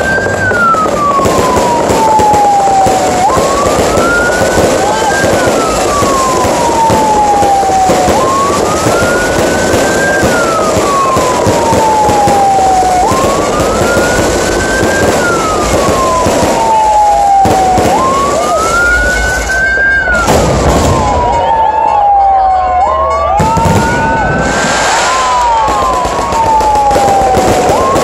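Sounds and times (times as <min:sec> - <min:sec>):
fireworks crackling and popping: 0:00.0 - 0:21.5, 0:23.4 - 0:28.0
siren wailing: 0:00.0 - 0:28.0
loud firework bang: 0:20.2 - 0:21.4, 0:23.4 - 0:28.0.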